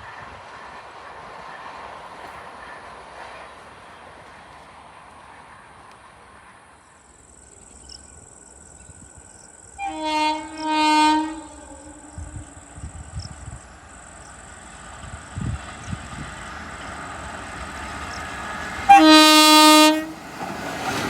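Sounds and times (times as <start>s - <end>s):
train horn blasts: 9.8s - 12.9s, 18.8s - 20.3s.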